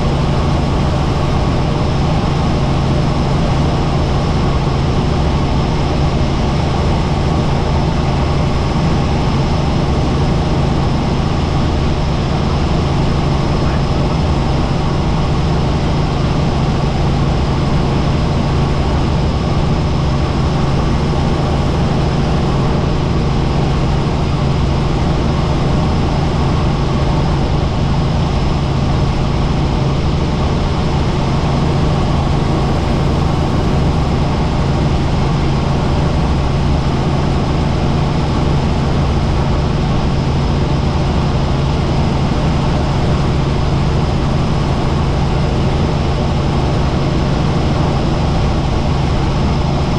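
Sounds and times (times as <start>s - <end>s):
helicopter rotor and turbine: 0.0s - 49.9s.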